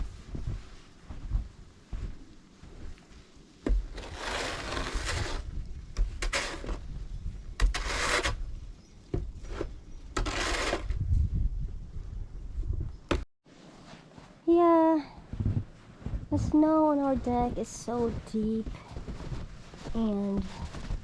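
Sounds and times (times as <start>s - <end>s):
shovel scraping snow: 3.7s - 6.8s, 7.6s - 8.5s, 9.5s - 11.0s.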